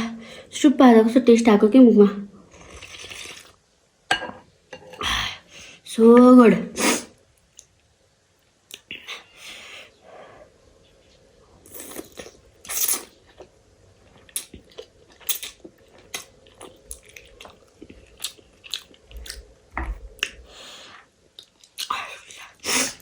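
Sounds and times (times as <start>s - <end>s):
person chewing: 2.5s - 3.6s, 11.7s - 20.6s.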